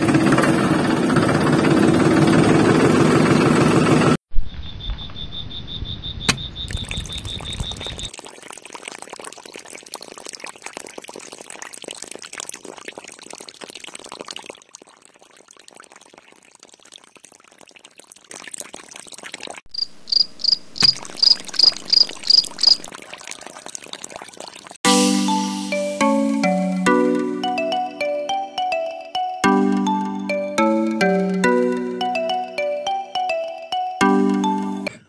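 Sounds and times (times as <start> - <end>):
cricket chirping: 4.3 - 8.1, 19.7 - 22.9
water trickling into metal pot: 6.7 - 19.6, 21.0 - 24.8
faint crackle: 8.1 - 19.6.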